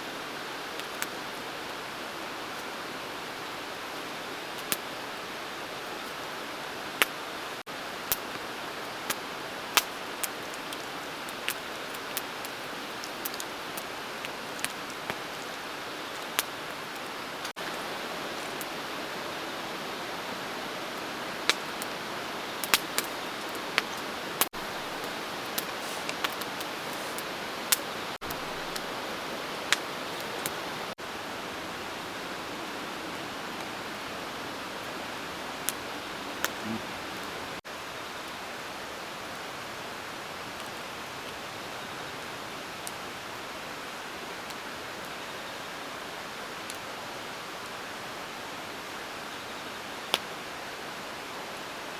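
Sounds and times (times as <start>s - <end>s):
river rushing: 13.6s - 37.6s.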